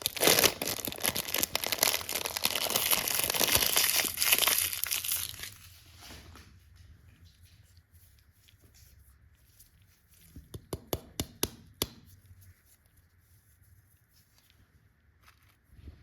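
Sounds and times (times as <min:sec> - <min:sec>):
soft handling noise: 0:05.5 - 0:10.6, 0:12.0 - 0:16.0
sharp taps on hard surface: 0:10.5 - 0:12.1.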